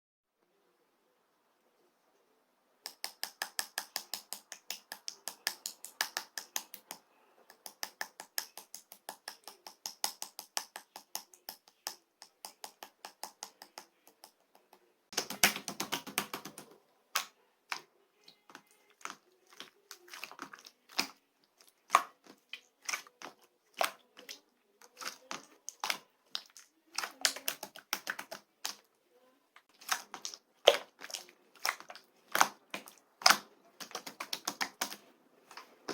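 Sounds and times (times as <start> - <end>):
slime clicking and popping: 2.9 - 14.4, 15.2 - 17.8, 25.0 - 28.8, 29.8 - 35.0.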